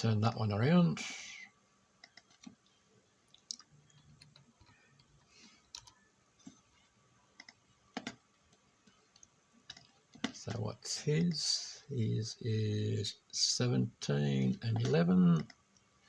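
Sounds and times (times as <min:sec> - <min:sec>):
computer mouse clicks: 0:02.0 - 0:02.7, 0:03.4 - 0:06.6, 0:07.4 - 0:10.4.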